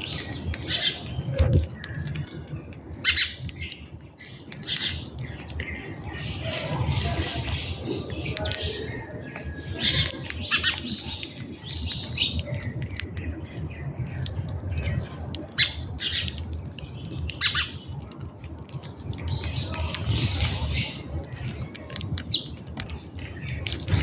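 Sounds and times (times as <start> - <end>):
harsh bird calls: 0.0 - 18.0, 19.1 - 24.0
birds squawking and chirping: 0.0 - 24.0.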